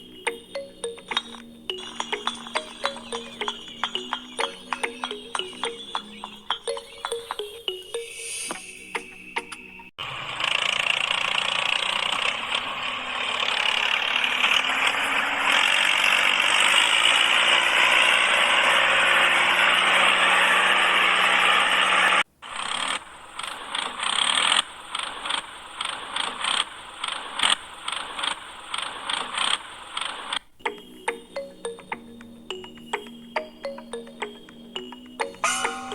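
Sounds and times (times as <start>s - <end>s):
small motor whirring: 10.0s - 30.4s.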